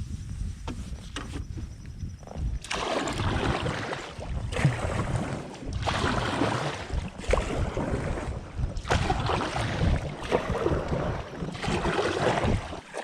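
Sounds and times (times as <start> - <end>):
kayak paddle splashing: 2.6 - 13.0.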